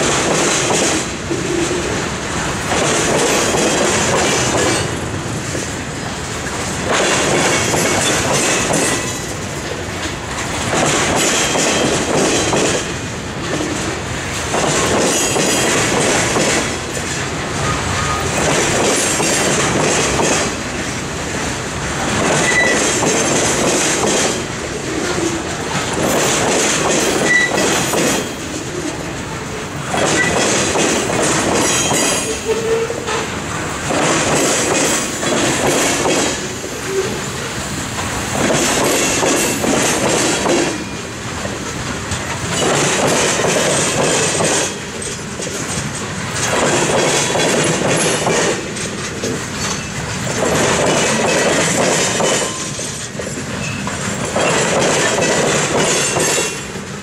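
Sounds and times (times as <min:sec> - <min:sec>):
train wheels clattering over crossing: 0:00.0 - 0:57.0
wheel squeals: 0:22.4 - 0:23.0, 0:27.2 - 0:27.8.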